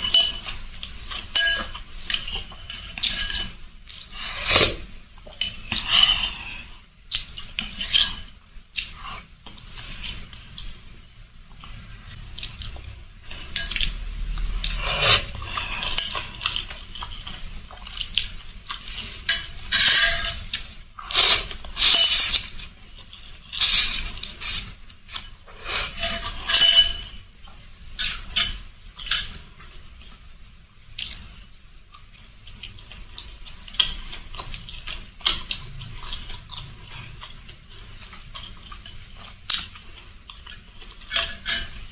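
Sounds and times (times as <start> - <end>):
utensils clinking against bowl: 0.0 - 4.8, 14.6 - 18.0, 18.7 - 27.3, 27.9 - 29.5, 40.4 - 41.9.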